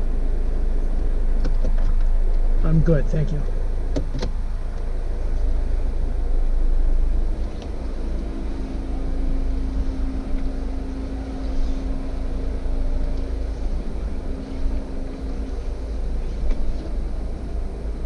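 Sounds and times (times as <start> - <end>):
engine rumbling at low revs: 0.0 - 18.0
steady hum: 0.0 - 18.0.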